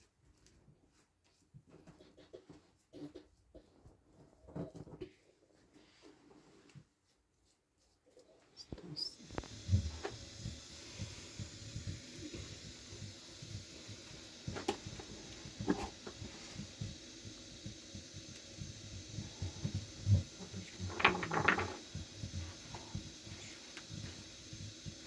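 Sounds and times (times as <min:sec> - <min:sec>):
objects being handled: 0:19.6 - 0:24.1.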